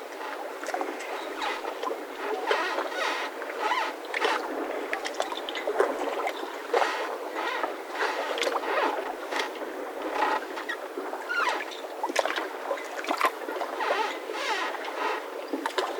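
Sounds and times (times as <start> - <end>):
mooring ropes creaking and squeaking: 0.2 - 4.5, 6.8 - 9.5, 10.2 - 11.7, 13.8 - 15.3.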